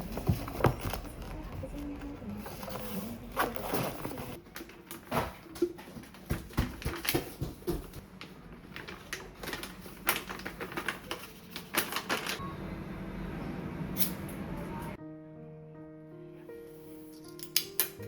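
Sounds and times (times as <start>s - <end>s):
objects knocking and clicking: 3.6s - 8.0s.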